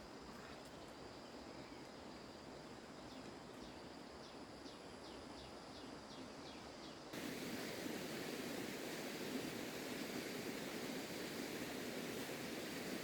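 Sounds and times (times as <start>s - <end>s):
loud hiss: 7.2s - 13.0s.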